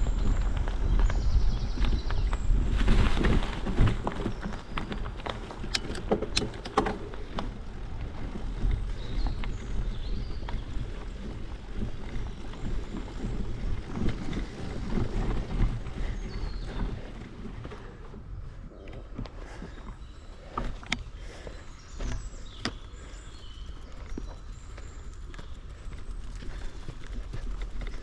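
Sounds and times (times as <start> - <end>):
bicycle tyres rumbling: 0.0 - 28.0
clicks and rattles: 4.7 - 7.5.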